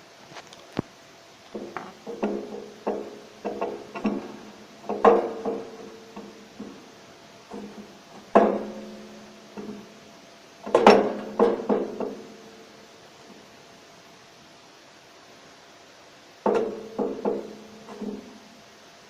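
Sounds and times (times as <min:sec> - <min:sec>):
metal stove door clanking: 0:01.6 - 0:06.9, 0:07.5 - 0:09.0, 0:10.7 - 0:12.3, 0:16.5 - 0:18.3.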